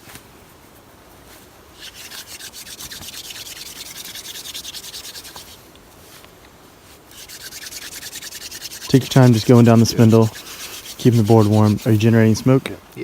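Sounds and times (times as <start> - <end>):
wooden spindle rasping on board: 1.8 - 5.6, 7.1 - 12.4.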